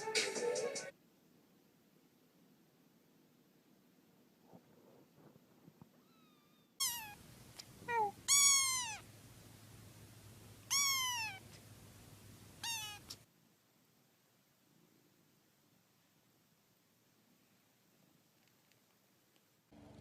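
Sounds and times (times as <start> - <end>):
faint low hum: 0.1 - 20.0
cat meowing: 6.0 - 7.2, 7.8 - 9.0, 10.7 - 11.6, 12.6 - 13.2.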